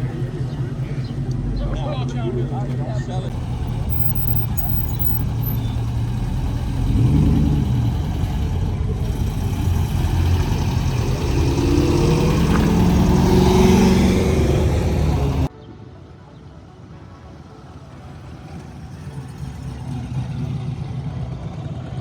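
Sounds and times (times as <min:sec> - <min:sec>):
car engine revving: 0:00.0 - 0:15.5.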